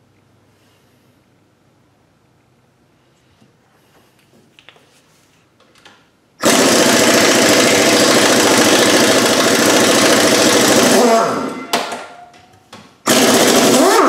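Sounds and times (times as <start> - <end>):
power tool running: 6.4 - 11.7, 13.1 - 14.0.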